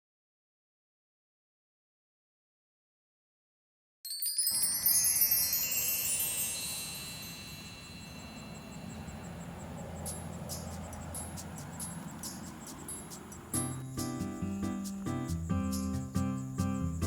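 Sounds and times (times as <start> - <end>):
wind chimes cascading: 4.1 - 14.2.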